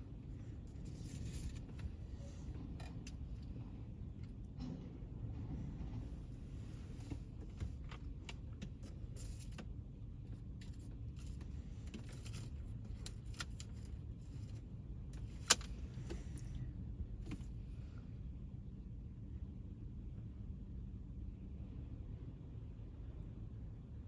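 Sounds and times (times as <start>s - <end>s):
light clicks and clatter: 0.5s - 16.6s.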